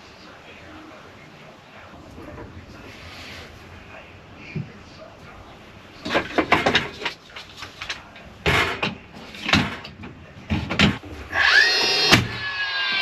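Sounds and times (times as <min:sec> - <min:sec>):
power tool whine: 0:11.3 - 0:13.0.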